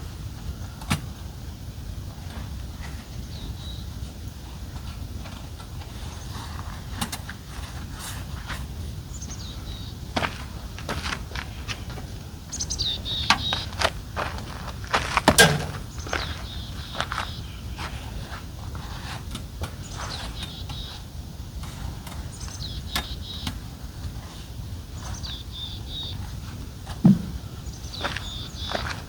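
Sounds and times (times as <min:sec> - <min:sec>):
birds chirping: 0:02.3 - 0:29.0
knocks clicks and rustling of tent: 0:04.8 - 0:08.7, 0:14.7 - 0:16.2, 0:26.8 - 0:27.4
dull thump: 0:26.9 - 0:27.4.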